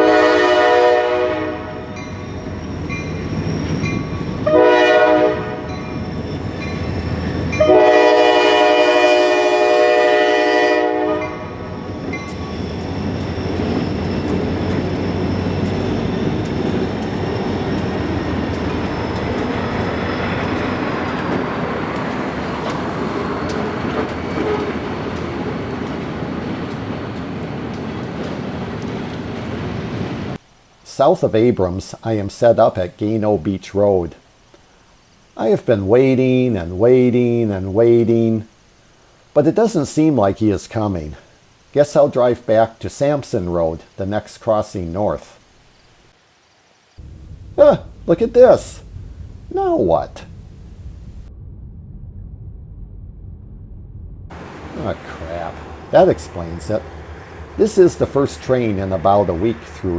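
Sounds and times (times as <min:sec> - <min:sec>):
locomotive air horn blasts: 0:00.0 - 0:02.0, 0:04.4 - 0:05.8, 0:07.6 - 0:11.7
train wheels clicking over rail joints: 0:11.8 - 0:30.1, 0:47.0 - 0:51.2, 0:54.3 - 0:59.9.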